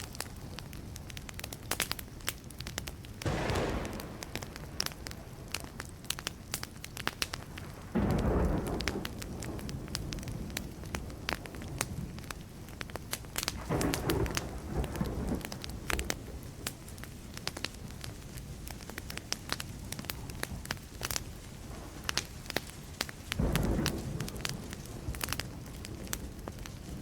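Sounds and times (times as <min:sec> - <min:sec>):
campfire crackling and popping: 0:00.0 - 0:27.0
thunder rumbling: 0:03.2 - 0:16.4, 0:23.4 - 0:27.0.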